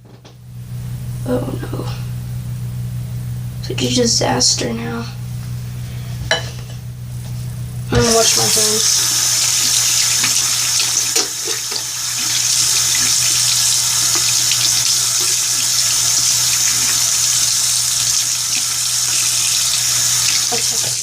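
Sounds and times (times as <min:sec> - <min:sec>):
tap running into a sink: 0:10.0 - 0:13.2.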